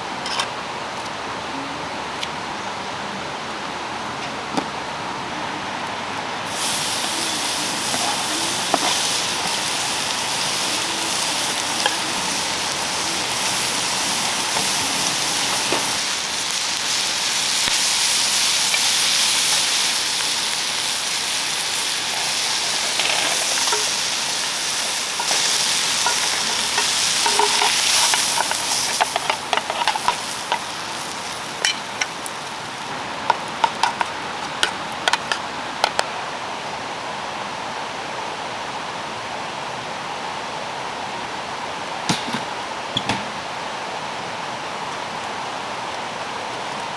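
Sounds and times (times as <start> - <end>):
meat sizzling in a pan: 6.4 - 36.0
utensils tapping the pan: 21.7 - 32.5, 33.2 - 36.0, 42.1 - 43.3.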